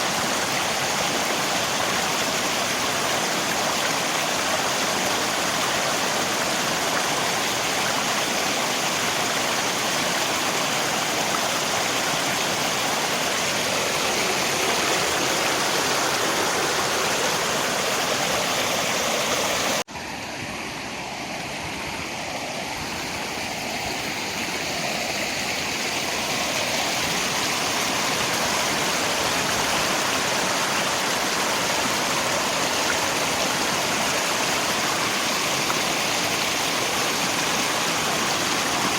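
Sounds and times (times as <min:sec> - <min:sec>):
river water rushing: 0:00.0 - 0:38.9
rain: 0:23.1 - 0:38.9.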